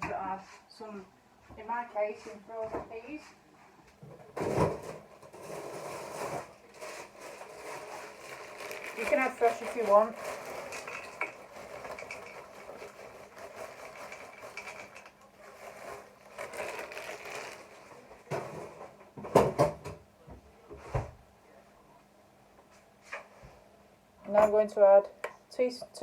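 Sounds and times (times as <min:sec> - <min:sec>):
frozen peas rattling into a pan: 0:05.4 - 0:18.7.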